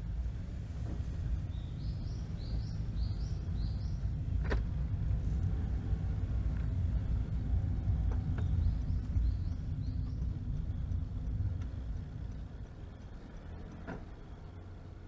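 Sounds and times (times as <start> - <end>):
low rumble: 0.0 - 15.0
bird chirping: 1.5 - 4.2, 8.2 - 11.1.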